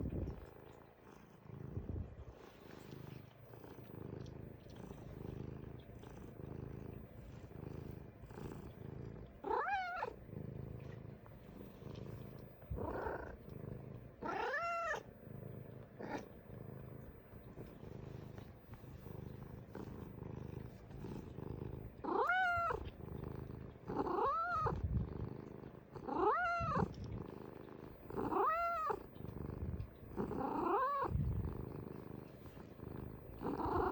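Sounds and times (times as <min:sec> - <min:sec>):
cat purring: 0:00.0 - 0:33.9
cat meowing: 0:09.4 - 0:10.1, 0:14.2 - 0:15.0, 0:22.1 - 0:22.9, 0:26.1 - 0:26.9, 0:28.3 - 0:29.0.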